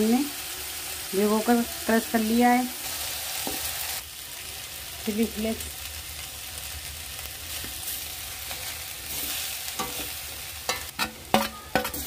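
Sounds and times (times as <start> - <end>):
food sizzling in a pan: 0.0 - 12.0
spatula stirring: 8.4 - 12.0
spatula knocking on pan: 10.7 - 12.0.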